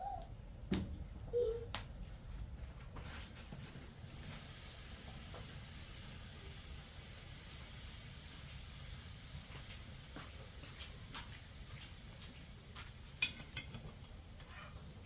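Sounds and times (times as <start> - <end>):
food sizzling in a pan: 4.0 - 15.0.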